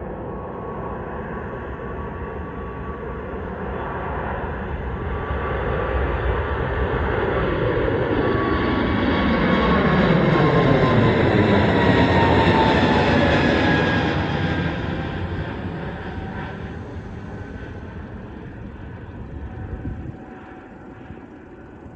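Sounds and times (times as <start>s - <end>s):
jet engines approaching: 0.0s - 21.9s
low rumble: 14.8s - 21.9s.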